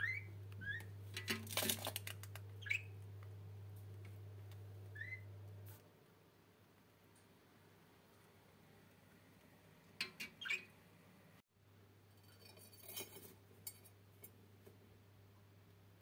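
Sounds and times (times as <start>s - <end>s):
faint low hum: 0.0s - 10.0s
budgerigars chirping: 2.6s - 2.9s, 4.9s - 5.2s, 10.4s - 10.7s.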